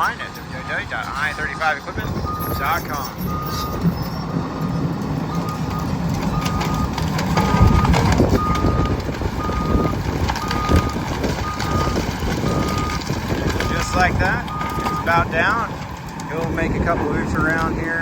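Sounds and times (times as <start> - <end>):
excavator travel alarm beeping: 0.0 - 15.8
diesel engine under load: 0.0 - 18.0
tree crunching and cracking: 4.6 - 18.0.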